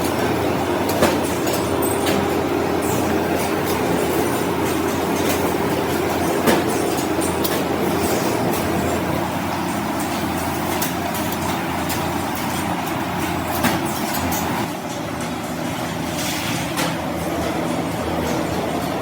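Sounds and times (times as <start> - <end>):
workshop machinery humming: 0.0 - 19.0.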